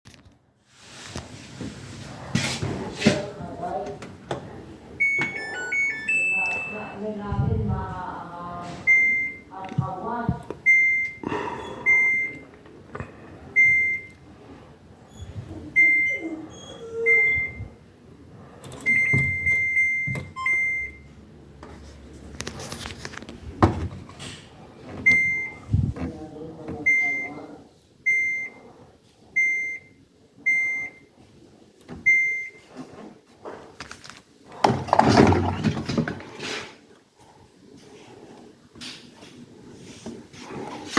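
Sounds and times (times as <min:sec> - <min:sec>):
short high beeps: 0:05.0 - 0:07.0.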